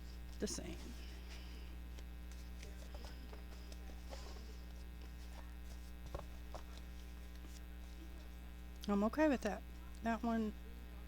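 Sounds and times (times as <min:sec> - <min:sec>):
electrical mains hum: 0:00.0 - 0:11.0
paper pages rustling and tapping: 0:00.8 - 0:08.0.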